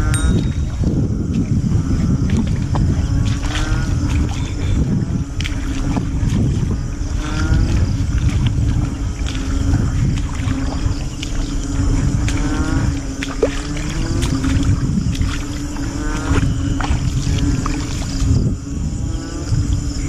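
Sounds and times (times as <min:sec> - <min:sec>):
frogs chirping: 0:00.0 - 0:20.0
loud low rumbling noise: 0:00.0 - 0:20.0
steady low hum: 0:00.0 - 0:20.0.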